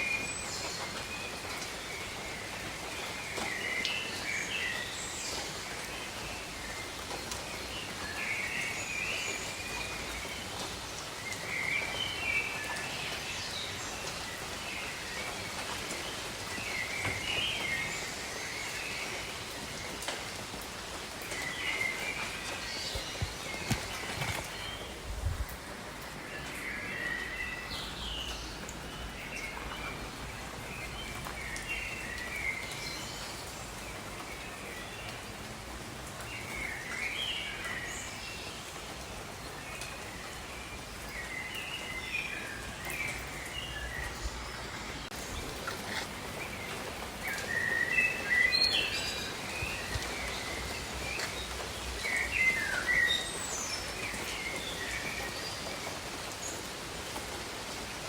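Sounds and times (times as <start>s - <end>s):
rain: 0.0s - 58.0s.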